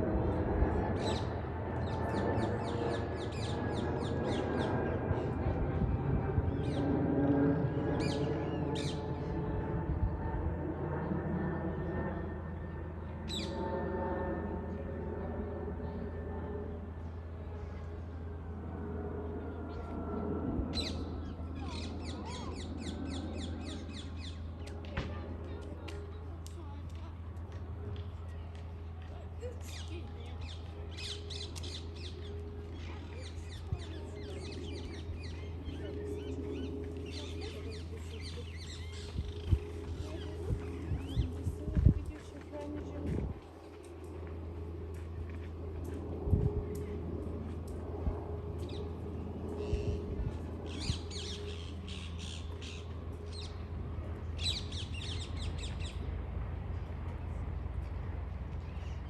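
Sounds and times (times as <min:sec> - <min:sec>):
steady low rumble: 0:00.0 - 0:59.0
birds chattering: 0:13.3 - 0:13.6, 0:20.7 - 0:24.9, 0:29.6 - 0:42.2, 0:49.5 - 0:53.6.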